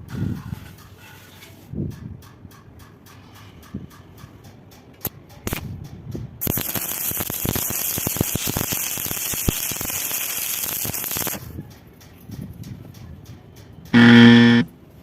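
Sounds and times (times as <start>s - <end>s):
welding arc crackling and hissing: 5.4s - 5.7s, 6.4s - 11.6s.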